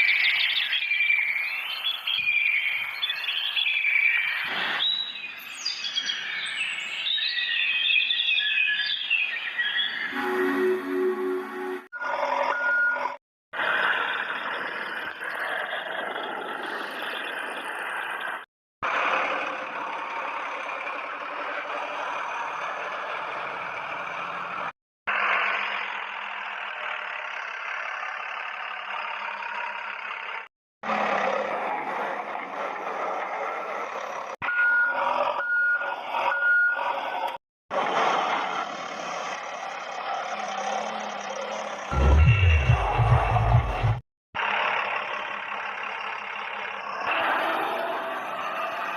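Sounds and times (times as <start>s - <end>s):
reversing beeps: 10.1s - 13.2s, 34.4s - 37.3s.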